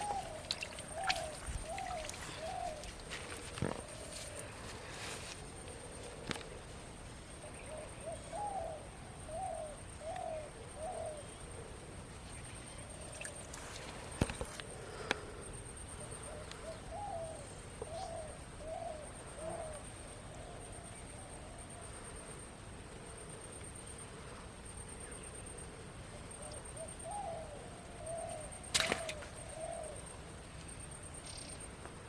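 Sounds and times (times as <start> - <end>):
dove cooing: 0.0 - 6.5, 7.4 - 11.8, 16.1 - 19.8, 26.4 - 30.1.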